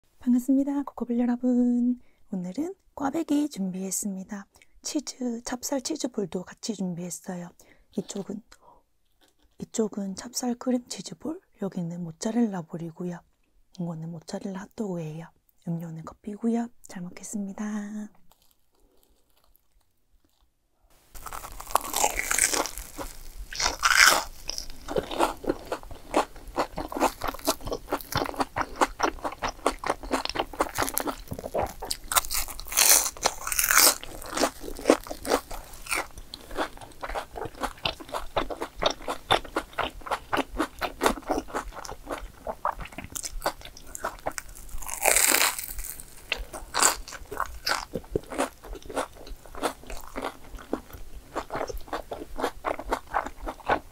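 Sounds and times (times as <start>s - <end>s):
crunching of fried food: 9.0s - 9.6s, 18.2s - 53.9s.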